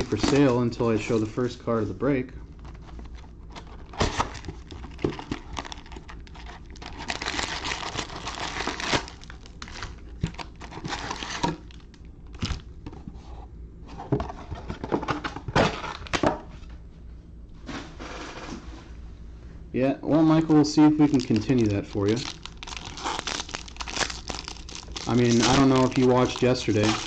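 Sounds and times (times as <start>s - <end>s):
plastic wrapping crinkling and tearing: 0.0s - 1.4s, 2.6s - 12.7s, 20.8s - 27.0s.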